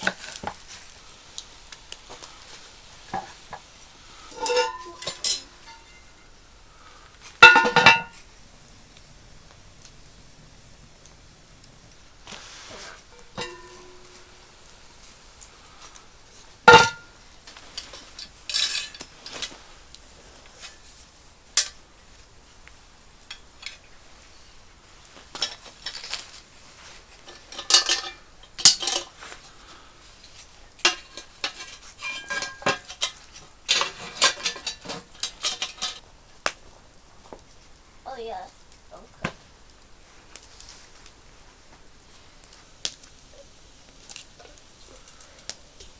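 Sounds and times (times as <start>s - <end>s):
metal cookware clinking: 4.1s - 6.3s, 7.4s - 8.2s, 13.1s - 14.6s, 16.6s - 19.4s, 27.2s - 29.2s, 30.8s - 36.0s.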